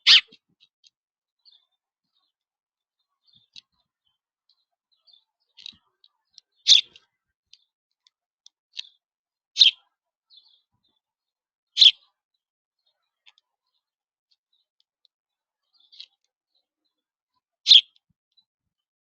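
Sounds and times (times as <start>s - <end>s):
bird sharp call notes: 0.0s - 0.3s, 11.8s - 12.0s
faint bird chips: 0.0s - 0.5s, 5.0s - 7.7s, 9.6s - 10.6s, 11.8s - 12.1s, 17.7s - 18.0s.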